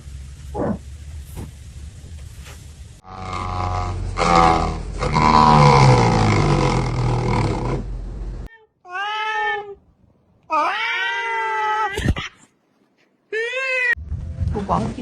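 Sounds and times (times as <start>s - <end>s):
cat yowling and meowing: 8.5s - 9.8s, 10.5s - 12.3s, 13.3s - 14.0s.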